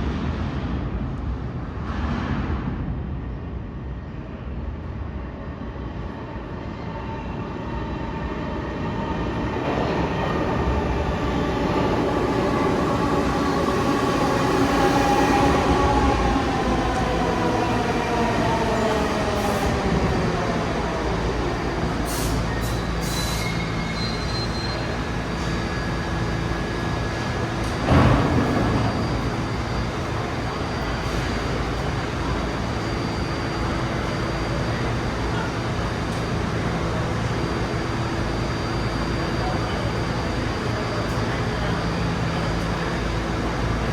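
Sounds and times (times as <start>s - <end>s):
subway train motor whine: 3.9s - 43.9s
sudden loud burst: 27.8s - 31.1s.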